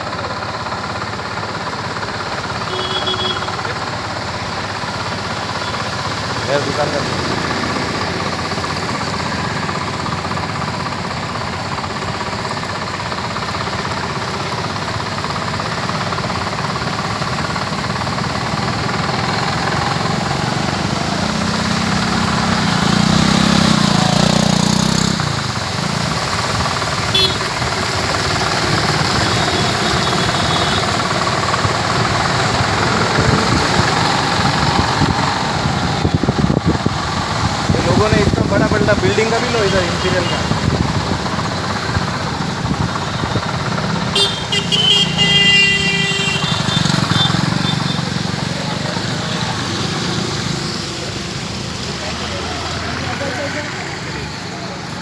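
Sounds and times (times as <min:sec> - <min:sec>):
vehicle engines rattling: 0:00.0 - 0:55.0
vehicle passing close: 0:18.5 - 0:44.1.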